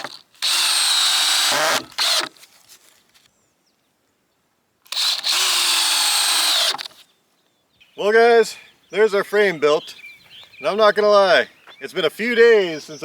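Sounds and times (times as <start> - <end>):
power drill running: 0.0 - 2.3, 4.9 - 6.9.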